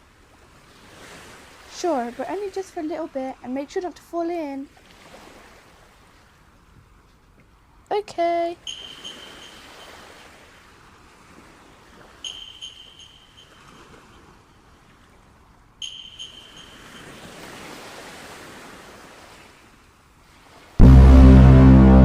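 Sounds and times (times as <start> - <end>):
ocean waves washing: 8.2 - 22.0
short high calls: 8.6 - 10.4, 12.2 - 14.4, 15.8 - 18.2.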